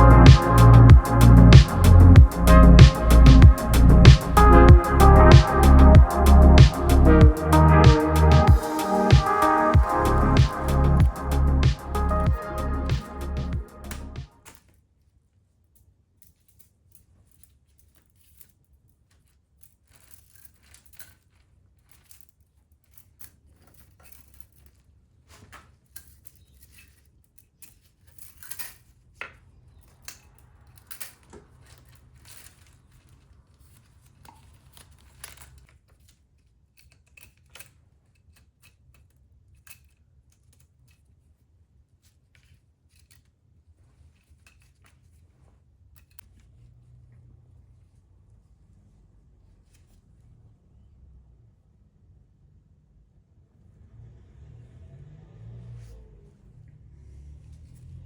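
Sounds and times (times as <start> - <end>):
low steady hum: 0.0 - 9.1
light handling noises: 15.8 - 48.0.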